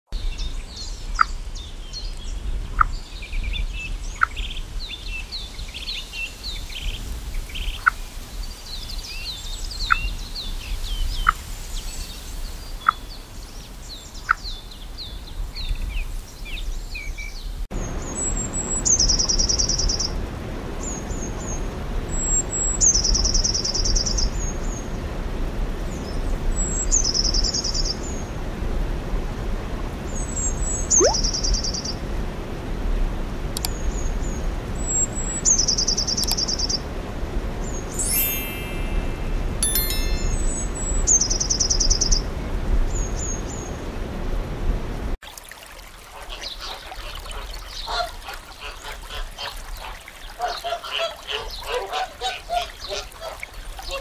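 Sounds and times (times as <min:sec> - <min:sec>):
small birds chirping: 0:30.2 - 0:32.0, 0:33.6 - 0:36.8, 0:37.6 - 0:43.9, 0:46.3 - 0:54.0
bird singing high notes and trill: 0:30.9 - 0:31.4, 0:37.8 - 0:42.3.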